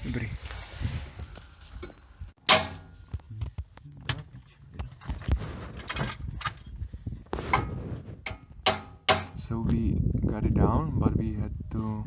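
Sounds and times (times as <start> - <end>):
sharp metal clank: 1.8 - 3.1, 8.3 - 9.5.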